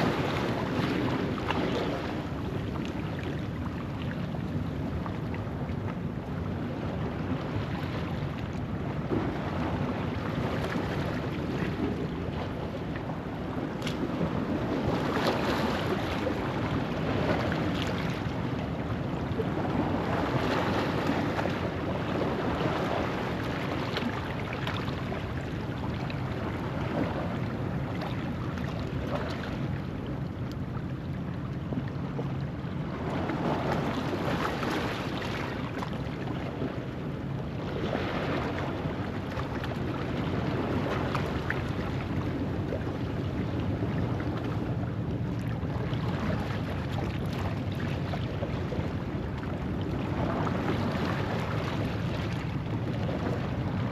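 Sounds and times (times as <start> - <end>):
ocean waves breaking on rocks: 0.0 - 3.2, 8.8 - 30.0, 32.8 - 53.9.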